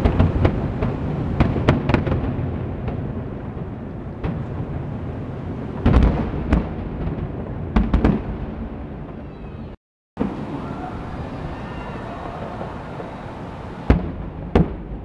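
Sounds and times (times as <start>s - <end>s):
fireworks booming: 0.0s - 9.3s, 10.2s - 15.0s
continuous low rumble: 10.2s - 14.3s.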